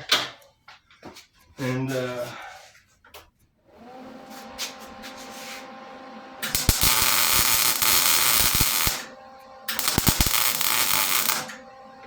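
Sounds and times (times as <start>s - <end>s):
electric power driver whirring: 6.4s - 9.1s, 9.7s - 11.6s.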